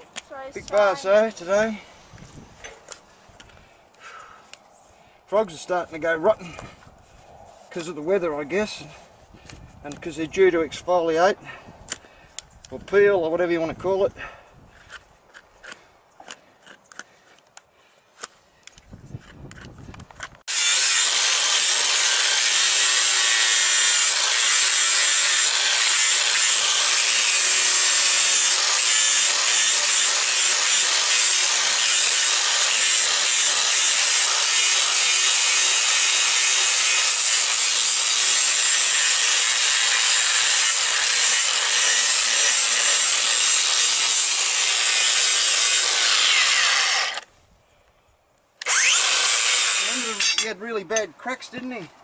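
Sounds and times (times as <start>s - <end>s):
power grinder grinding hoof: 20.5s - 47.3s, 48.6s - 50.5s.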